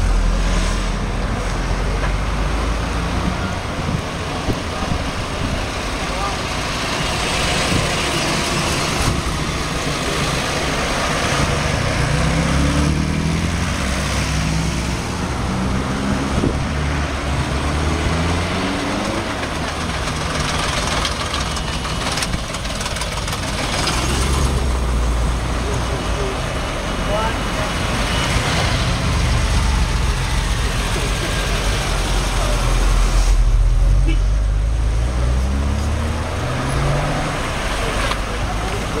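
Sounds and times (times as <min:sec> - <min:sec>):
car engine accelerating through gears: 0:07.4 - 0:21.2, 0:27.8 - 0:39.0.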